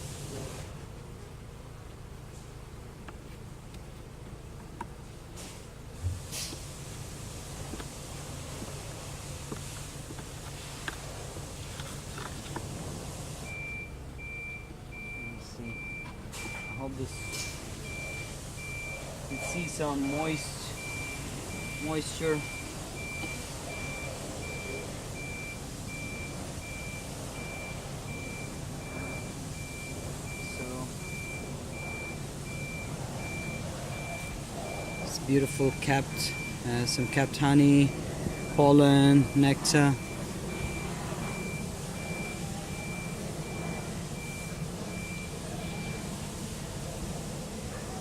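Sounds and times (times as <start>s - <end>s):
low steady hum: 0.0s - 48.0s
reversing alarm beeping: 13.4s - 46.5s.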